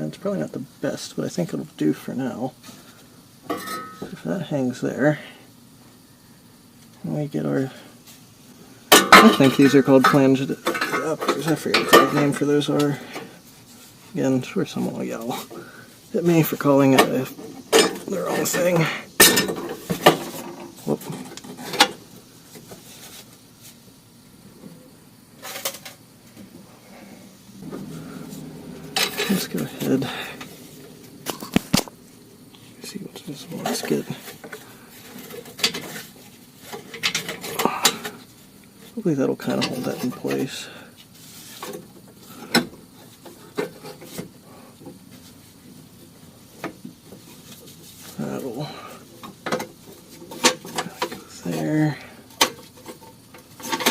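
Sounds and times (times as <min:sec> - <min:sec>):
metal hardware clanking: 0:28.7 - 0:30.5.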